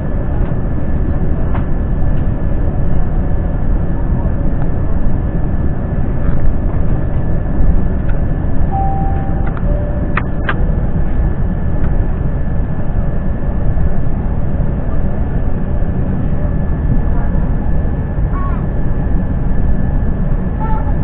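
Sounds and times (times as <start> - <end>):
airplane cabin engine rumble: 0.0 - 21.0
faint tones: 8.7 - 10.8.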